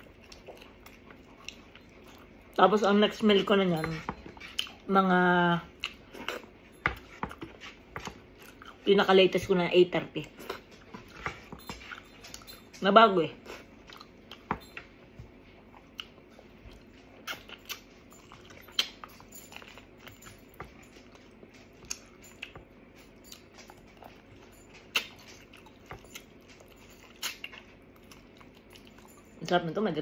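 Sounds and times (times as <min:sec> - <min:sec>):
person chewing meat off bone: 0:00.0 - 0:02.6, 0:05.7 - 0:08.8, 0:13.4 - 0:14.5, 0:15.3 - 0:20.2, 0:21.1 - 0:29.2.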